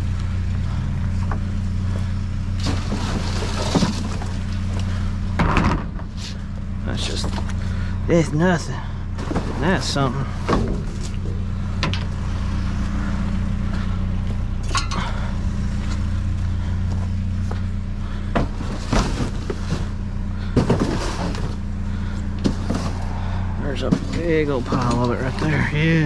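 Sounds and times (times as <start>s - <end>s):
vehicle engine idling: 0.0s - 26.0s
scrap metal clattering: 2.6s - 5.0s, 18.2s - 21.6s, 22.3s - 23.1s.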